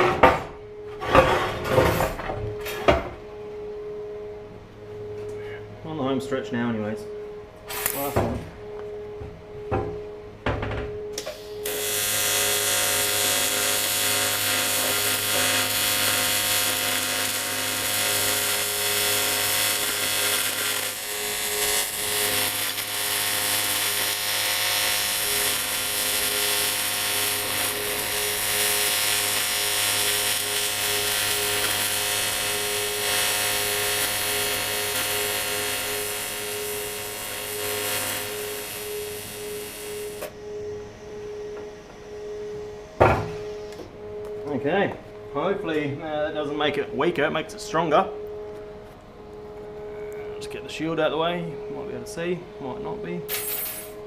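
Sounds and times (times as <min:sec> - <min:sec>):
welding arc buzzing hiss: 0:07.7 - 0:08.4, 0:11.1 - 0:40.4.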